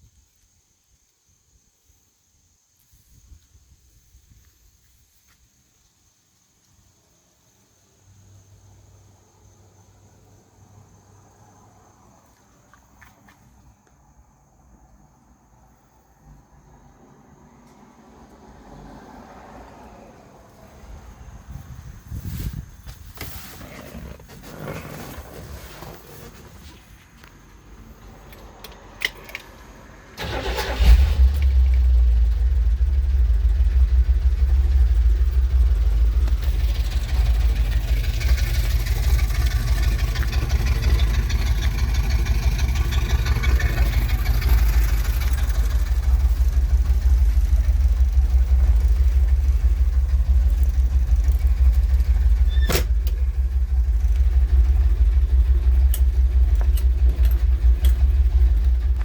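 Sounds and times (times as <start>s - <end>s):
engine low rumble: 7.7s - 59.0s
engine starting: 23.2s - 26.8s, 28.4s - 33.0s, 36.1s - 47.2s, 50.1s - 55.2s.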